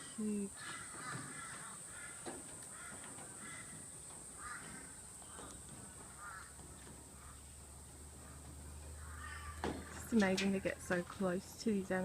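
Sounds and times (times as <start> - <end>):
steady high-pitched hiss: 0.0 - 12.0
harsh caw-like bird calls: 0.5 - 10.0.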